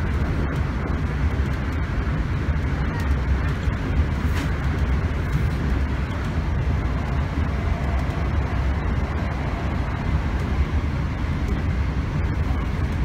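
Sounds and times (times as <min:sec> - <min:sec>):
even rushing noise: 0:00.0 - 0:13.0
train deep rumble: 0:00.0 - 0:13.0.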